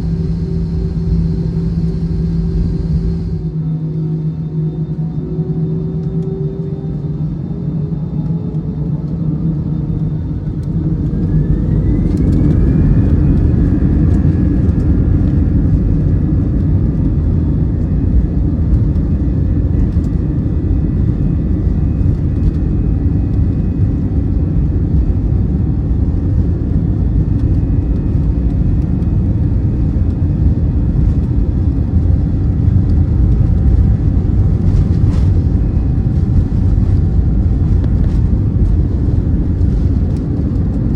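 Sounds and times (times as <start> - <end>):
jet engines whining and rumbling: 0.0 - 40.9.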